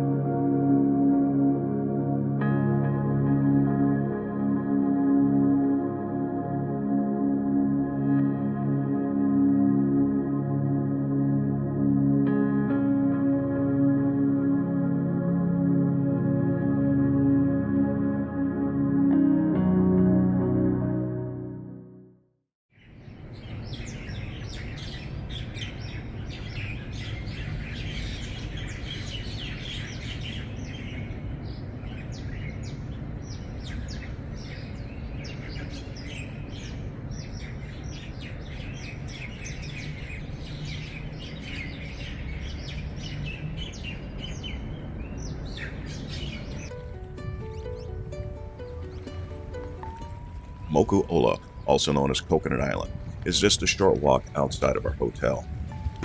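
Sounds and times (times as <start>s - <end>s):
birds chirping and calling: 22.8s - 56.0s
steady low rumble: 46.4s - 56.0s.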